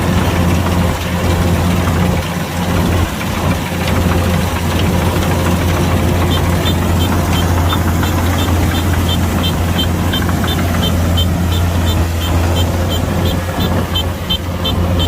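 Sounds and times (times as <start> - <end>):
combine harvester engine hum: 0.0 - 15.0.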